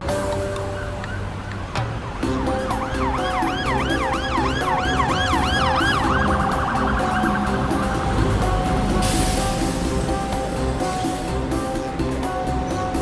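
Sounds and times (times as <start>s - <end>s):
background music: 0.0s - 13.0s
siren wailing: 2.3s - 9.0s.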